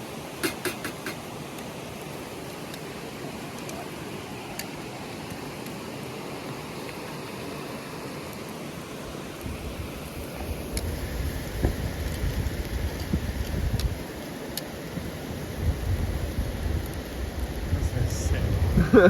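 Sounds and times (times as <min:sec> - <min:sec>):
waterfall rushing: 0:00.0 - 0:09.4.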